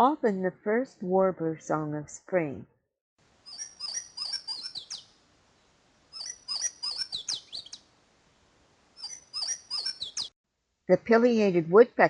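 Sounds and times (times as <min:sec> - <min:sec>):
bird singing slurred whistles: 0:03.5 - 0:05.1, 0:06.2 - 0:07.8, 0:09.0 - 0:10.3.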